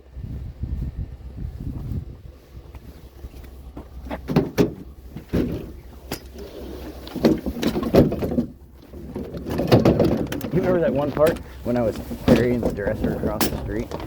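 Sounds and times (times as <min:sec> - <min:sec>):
low steady hum: 0:00.0 - 0:14.0
objects knocking and clunking: 0:03.8 - 0:14.0.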